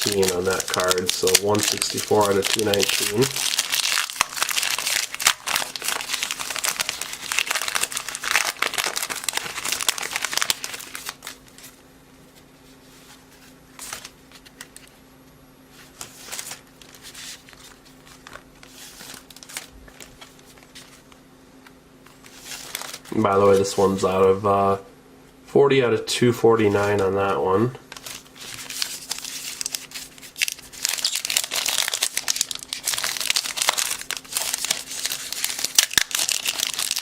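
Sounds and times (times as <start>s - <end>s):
card wrapper crinkling: 0.0s - 11.8s, 13.8s - 14.9s, 15.9s - 21.2s, 22.1s - 23.8s, 27.9s - 37.0s.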